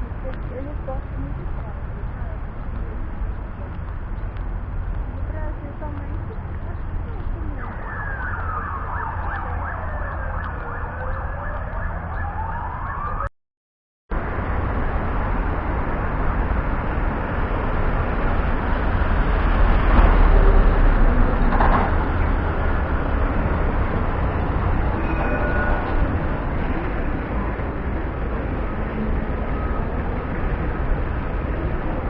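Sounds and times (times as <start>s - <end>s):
street traffic rumble: 0.0s - 13.3s, 14.1s - 32.0s
emergency siren wailing: 7.5s - 13.3s.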